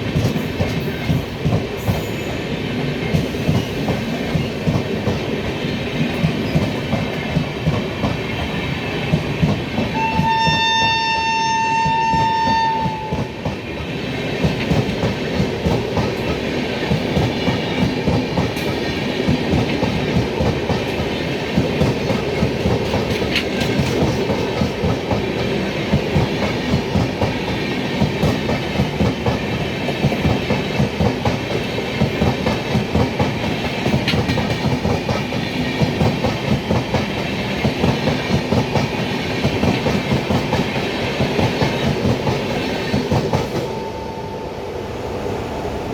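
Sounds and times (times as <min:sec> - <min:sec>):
train wheels clattering: 0:00.0 - 0:43.9
train horn blast: 0:09.9 - 0:13.3, 0:43.6 - 0:44.6.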